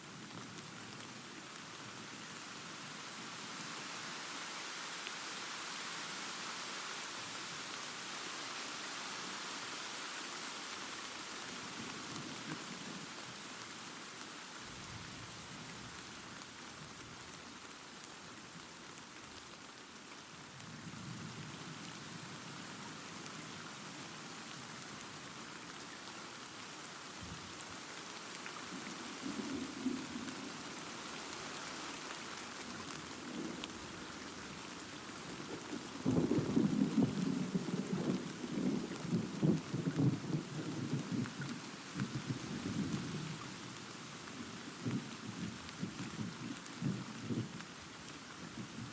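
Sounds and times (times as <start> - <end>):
rain hissing: 23.2 - 48.9.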